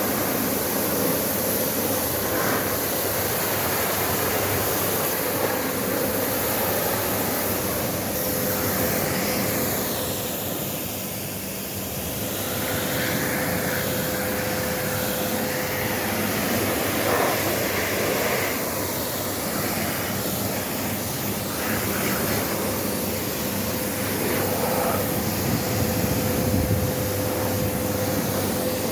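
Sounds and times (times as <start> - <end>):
machine whining and rushing: 12.1 - 28.9.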